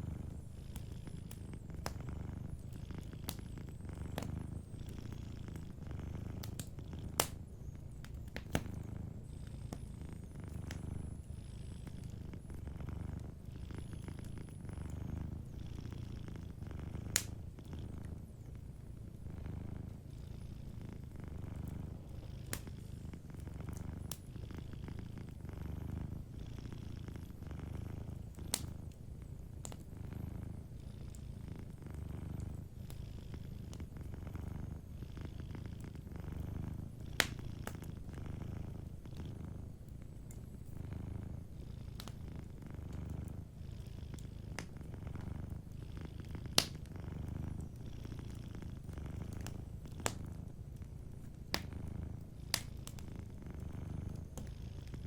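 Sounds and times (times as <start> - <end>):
wood fire popping: 0.0 - 11.2, 11.8 - 20.0, 21.0 - 34.9, 35.8 - 43.5, 44.2 - 55.0
cat purring: 0.0 - 55.0.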